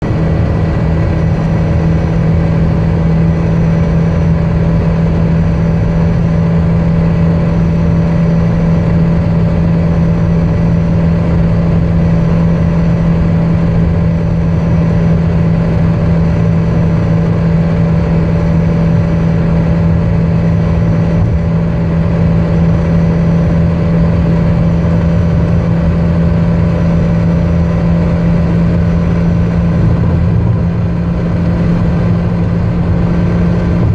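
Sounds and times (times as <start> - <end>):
car engine drone: 0.0 - 33.9
road noise: 0.0 - 33.9.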